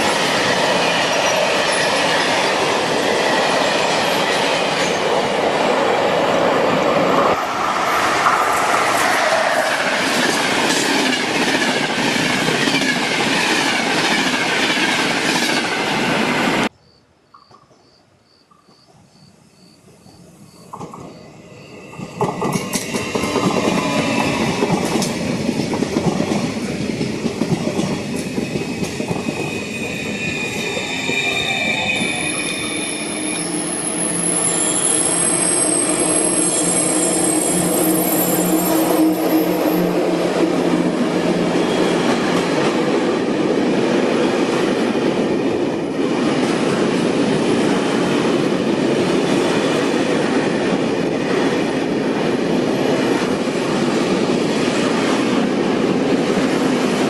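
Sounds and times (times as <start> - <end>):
electric train rushing past: 0.0 - 16.7, 19.6 - 57.0
freight train wheels rumbling: 0.0 - 16.7, 20.0 - 57.0
high-pitched wheel squeal: 29.5 - 40.0.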